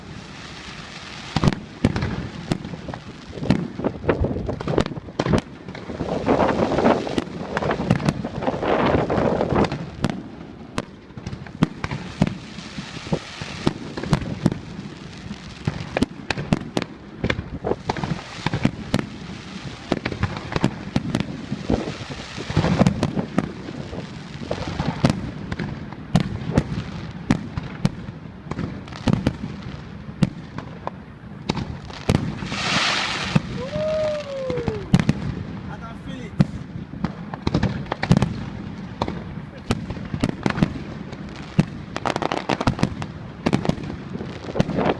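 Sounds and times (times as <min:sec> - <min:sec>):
fireworks bangs and crackling: 0:00.0 - 0:44.9
hiss: 0:32.4 - 0:34.9.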